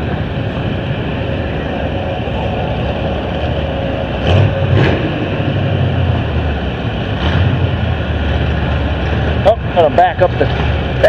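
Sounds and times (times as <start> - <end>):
car engine running loudly: 0.0 - 11.0.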